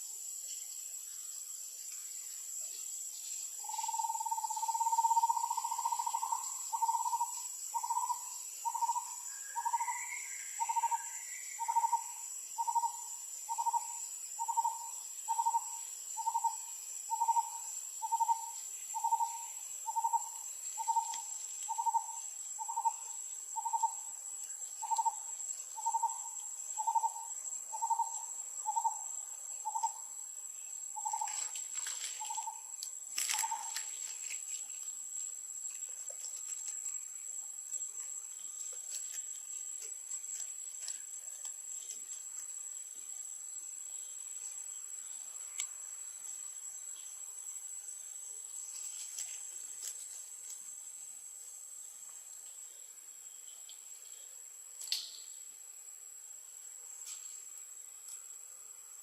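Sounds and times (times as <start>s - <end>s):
high-pitched insect drone: 0.0s - 35.7s.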